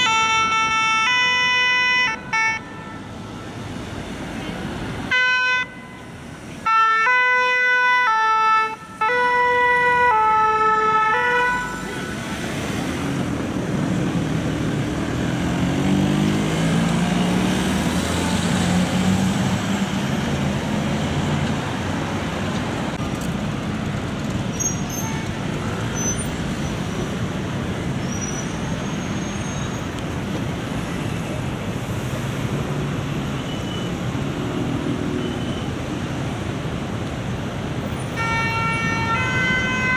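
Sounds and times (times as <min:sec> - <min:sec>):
city traffic noise: 0:00.0 - 0:39.9
two-tone siren: 0:38.2 - 0:39.9.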